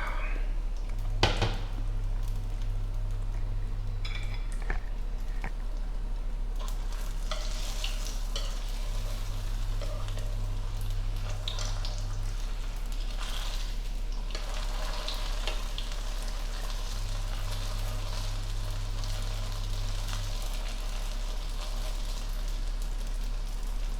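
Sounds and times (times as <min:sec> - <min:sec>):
low hum: 0:00.0 - 0:07.7
food frying in hot oil: 0:00.7 - 0:23.9.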